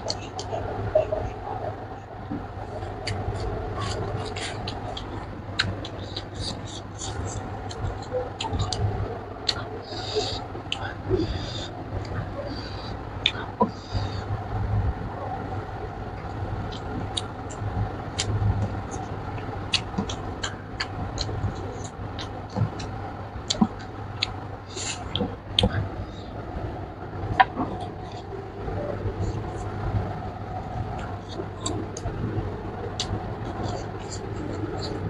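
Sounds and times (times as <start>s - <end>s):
low hum: 0.0s - 35.0s
chewing and lip-smacking: 2.7s - 8.8s, 9.4s - 14.0s, 16.2s - 25.8s.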